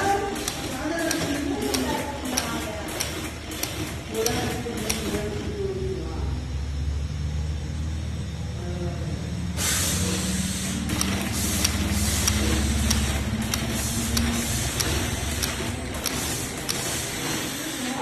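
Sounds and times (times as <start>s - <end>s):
sharp machine clicks: 0.0s - 5.5s, 9.7s - 18.0s
low machine hum: 0.0s - 18.0s
air hissing: 9.5s - 18.0s.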